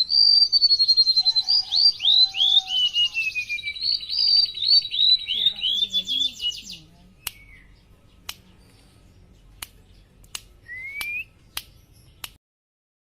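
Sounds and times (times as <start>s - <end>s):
sharp clicks: 7.2s - 7.5s, 8.2s - 8.5s, 9.6s - 12.4s.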